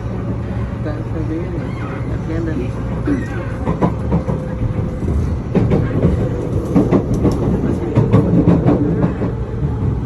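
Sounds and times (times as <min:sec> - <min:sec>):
train rumbling on rails: 0:00.0 - 0:10.0
wheels clacking over track: 0:02.7 - 0:09.8.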